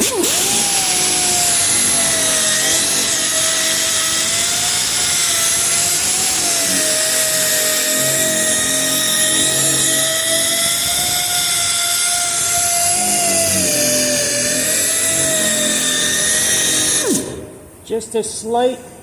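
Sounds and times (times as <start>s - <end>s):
sanding machine whine: 0.0s - 17.5s.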